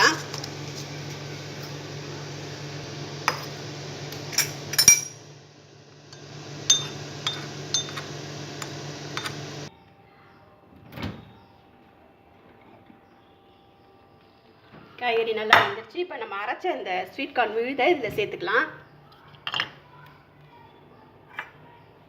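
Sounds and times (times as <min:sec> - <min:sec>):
steady low hum: 0:00.0 - 0:09.7
metal spoon clinking against glass: 0:04.3 - 0:05.2, 0:06.7 - 0:08.1.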